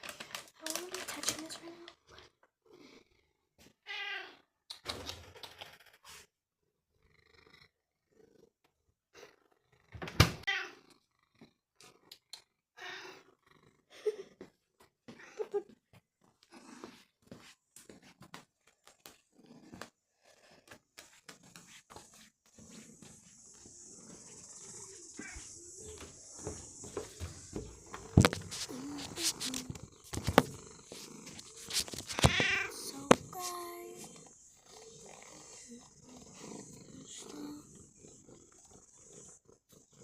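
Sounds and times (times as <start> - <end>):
cat meowing: 31.6 - 34.2.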